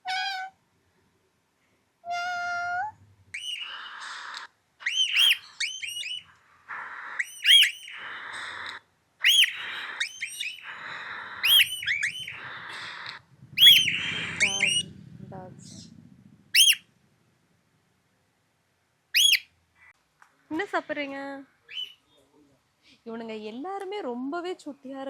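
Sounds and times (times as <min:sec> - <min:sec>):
parrots squawking: 0:00.0 - 0:00.5, 0:02.1 - 0:15.9, 0:16.5 - 0:16.9, 0:19.2 - 0:19.5, 0:21.7 - 0:22.0
parrots whistling: 0:02.1 - 0:15.0, 0:16.5 - 0:16.9, 0:19.1 - 0:19.5, 0:21.7 - 0:22.0.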